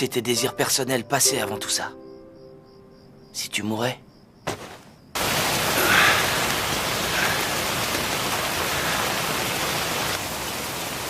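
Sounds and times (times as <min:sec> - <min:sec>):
heavy rain: 0:05.2 - 0:11.0.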